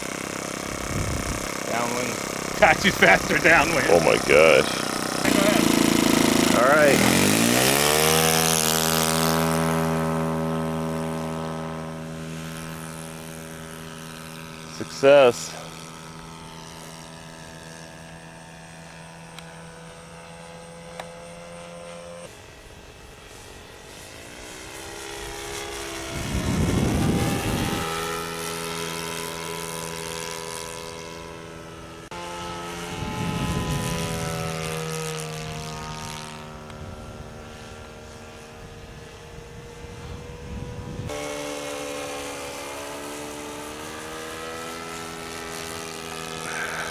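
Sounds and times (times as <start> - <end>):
model airplane engine buzzing: 0.0 - 46.9.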